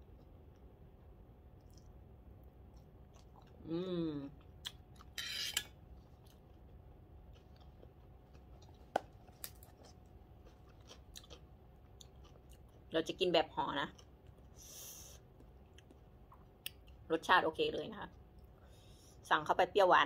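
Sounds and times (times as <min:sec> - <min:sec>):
person chewing food: 0:00.0 - 0:12.9, 0:13.9 - 0:17.1
person humming mmm: 0:03.6 - 0:04.4.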